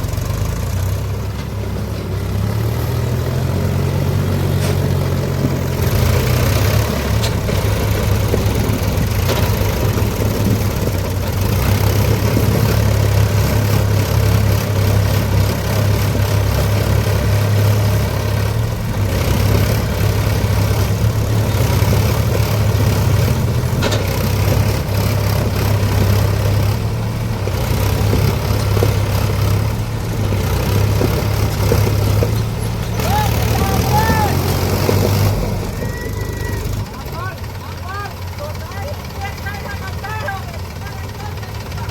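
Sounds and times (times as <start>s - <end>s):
tractor engine humming: 0.0s - 41.9s.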